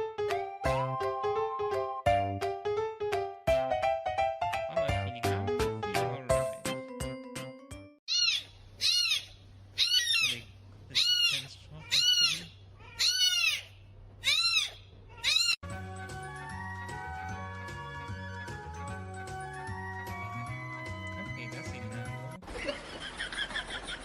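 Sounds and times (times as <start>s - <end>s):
music: 0.0s - 8.0s, 15.6s - 22.4s
cat meowing: 8.1s - 15.6s.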